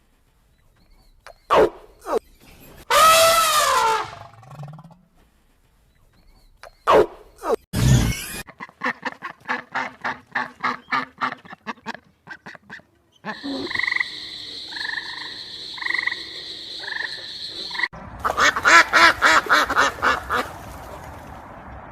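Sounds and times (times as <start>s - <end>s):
croaking animal calls: 8.4s - 20.7s.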